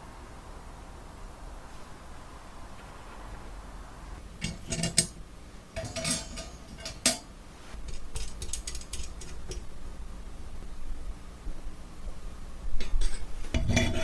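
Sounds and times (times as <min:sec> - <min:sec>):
metal utensils clinking and scraping: 0:04.4 - 0:05.2, 0:05.8 - 0:07.3, 0:12.8 - 0:14.0.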